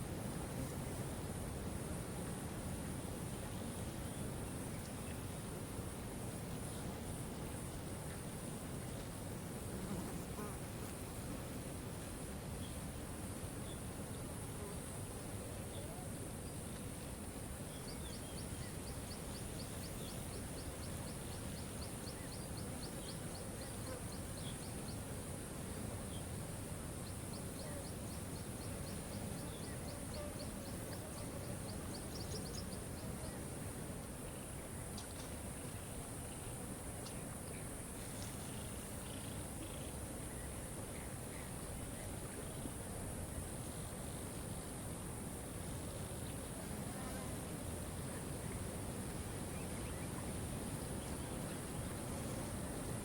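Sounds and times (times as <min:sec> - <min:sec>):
faint bird chirps: 0:27.0 - 0:33.6.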